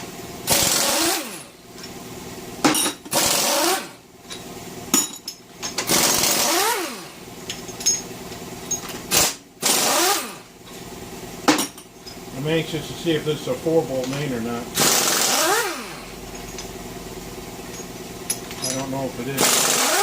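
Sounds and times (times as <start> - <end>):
air impact wrench hammering: 0.4 - 1.9, 2.6 - 8.1, 8.7 - 10.5, 11.4 - 11.9, 14.8 - 16.7, 17.6 - 20.0.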